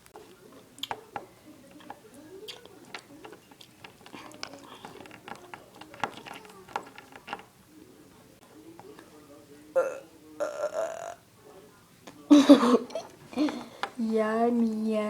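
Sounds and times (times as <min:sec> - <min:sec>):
plastic toys clicking and tapping: 0:00.2 - 0:07.5.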